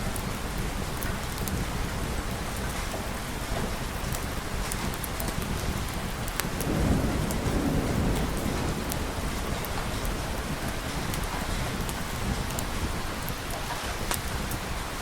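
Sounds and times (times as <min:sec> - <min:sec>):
heavy rain: 0:00.0 - 0:15.0
thunder rumbling: 0:04.8 - 0:13.3.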